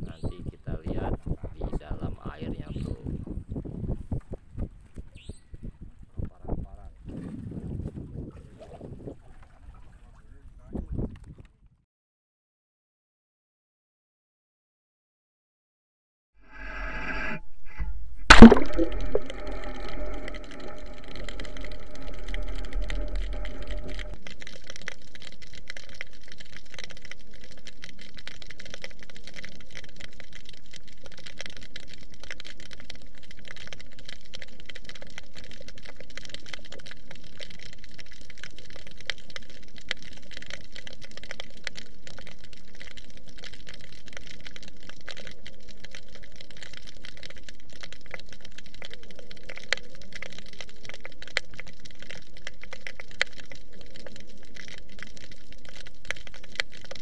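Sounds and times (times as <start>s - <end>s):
underwater crackling: 16.5s - 57.0s.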